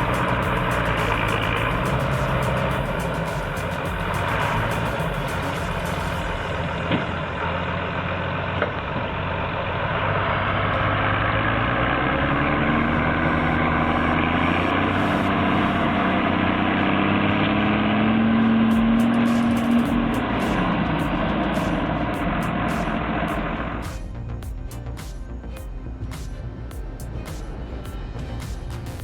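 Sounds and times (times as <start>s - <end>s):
tone rising in pitch: 0.0s - 8.3s, 10.8s - 29.0s
heavy diesel engine running: 0.0s - 29.0s.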